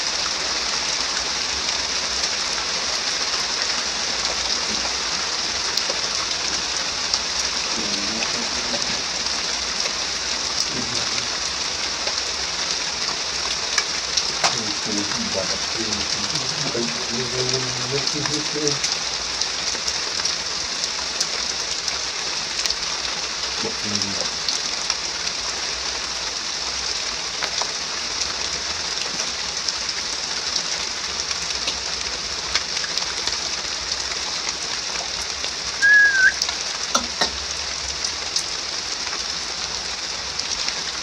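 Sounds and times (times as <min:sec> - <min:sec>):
heavy rain falling: 0:00.0 - 0:41.0
short high rising call: 0:35.8 - 0:36.5.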